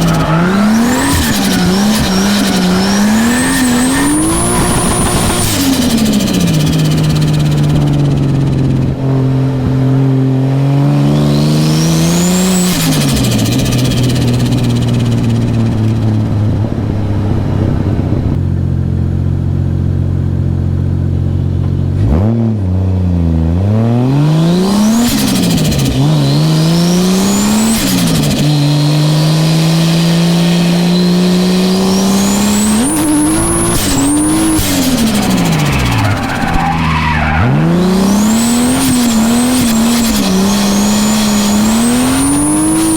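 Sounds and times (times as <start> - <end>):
high turbo whistle: 0.0 - 6.4, 31.7 - 42.9
car engine revving while drifting: 0.0 - 18.0, 21.9 - 42.9.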